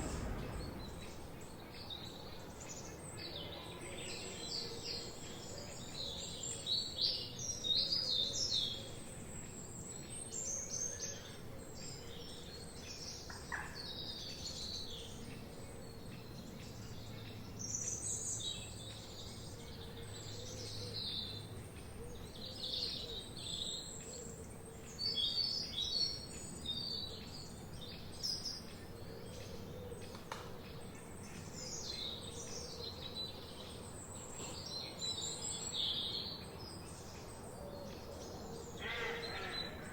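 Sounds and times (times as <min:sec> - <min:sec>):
songbirds singing and chirping: 0:15.8 - 0:39.9.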